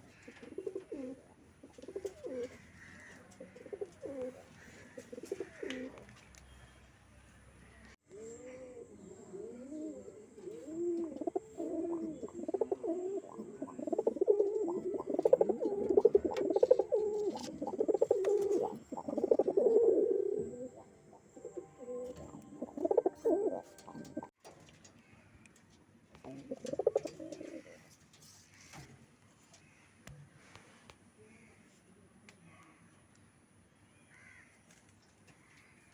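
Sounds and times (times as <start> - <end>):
pigeons cooing: 0.0 - 6.0, 8.1 - 24.4, 26.2 - 28.0.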